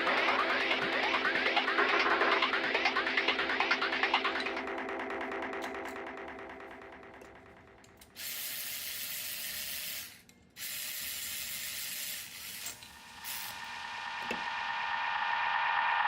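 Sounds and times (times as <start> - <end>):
pressurized spray hissing: 10.6 - 16.0.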